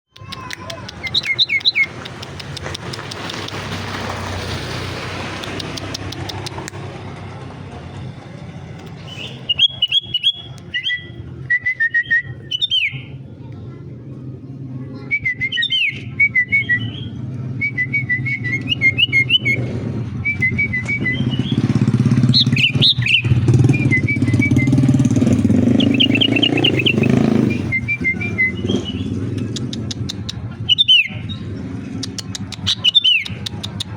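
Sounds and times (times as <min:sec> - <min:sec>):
bird singing whistled phrases: 0:00.9 - 0:01.9, 0:09.0 - 0:13.1, 0:15.0 - 0:29.2, 0:30.7 - 0:31.5, 0:32.1 - 0:33.5.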